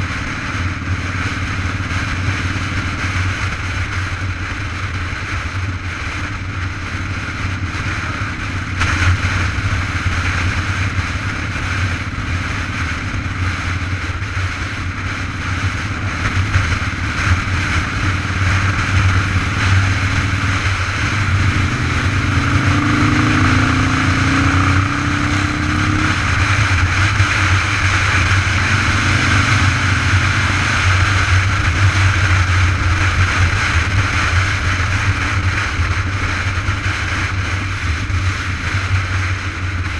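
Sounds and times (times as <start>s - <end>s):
road noise from bicycle: 0.0s - 39.9s
wind rushing: 6.3s - 36.6s
motor vehicle passing: 6.3s - 39.9s.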